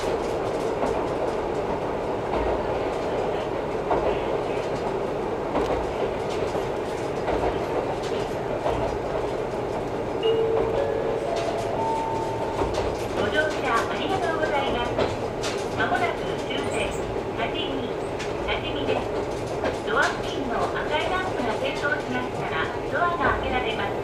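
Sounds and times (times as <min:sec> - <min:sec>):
railcar running rumble: 0:00.0 - 0:24.0
wheels clicking over rail joints: 0:03.9 - 0:17.2.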